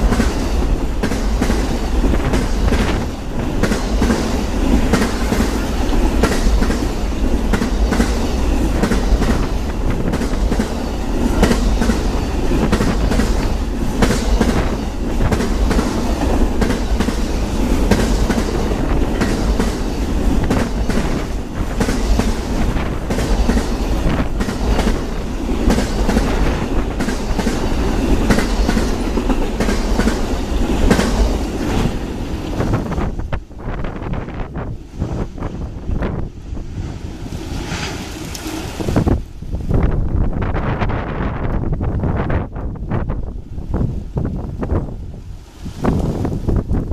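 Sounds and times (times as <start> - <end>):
train wheels clacking on rails: 0.0 - 36.3.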